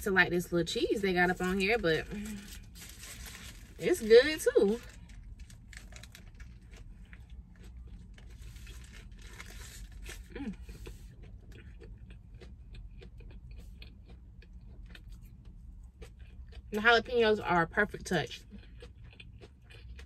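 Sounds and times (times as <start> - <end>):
low steady rumble: 0.0 - 20.0
paper wrapper crinkling: 1.3 - 10.3
chewing crispy chicken: 1.3 - 20.0.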